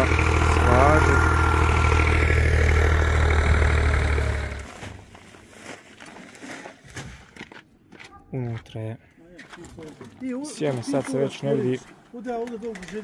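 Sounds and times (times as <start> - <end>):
tractor diesel engine idling: 0.0 - 4.7.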